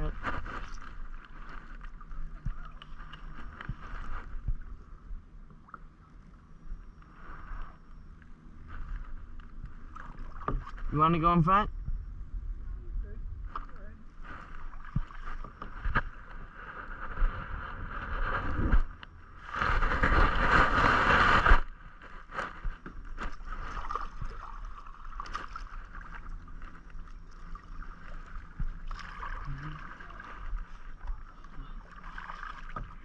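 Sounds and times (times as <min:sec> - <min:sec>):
paddle splashing water: 0:00.0 - 0:06.2, 0:07.0 - 0:11.3, 0:13.4 - 0:33.0
rush of water: 0:13.5 - 0:33.0.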